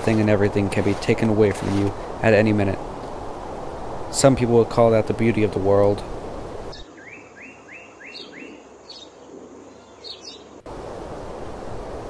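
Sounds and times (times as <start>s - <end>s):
steady outdoor hiss: 0.0s - 12.0s
bird chirping: 6.7s - 10.6s.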